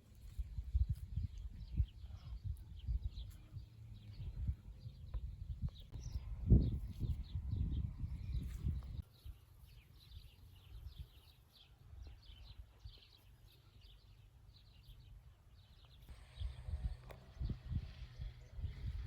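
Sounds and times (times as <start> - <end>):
songbirds chirping and singing: 0.2 - 19.0
low rumbling with thumps: 0.3 - 9.0, 16.1 - 19.0.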